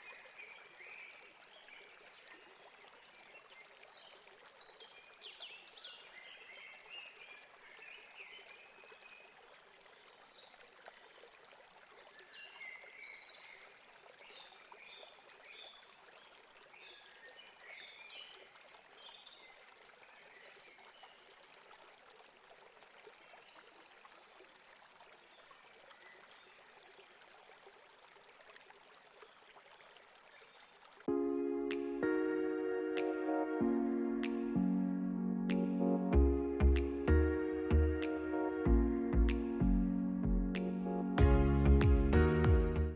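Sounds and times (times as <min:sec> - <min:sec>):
loud synthesizer music: 0:31.1 - 0:42.9.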